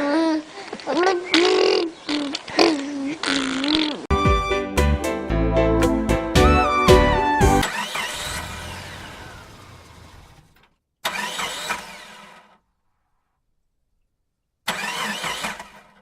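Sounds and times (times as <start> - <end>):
song: 4.1 - 7.6
car engine starting and revving: 7.5 - 12.6, 14.7 - 16.0.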